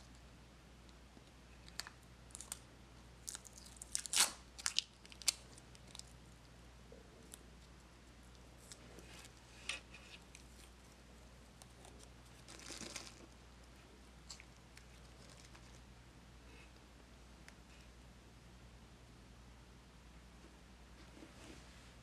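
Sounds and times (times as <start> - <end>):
low steady hum: 0.0 - 22.0
rustling scrape: 21.0 - 22.0.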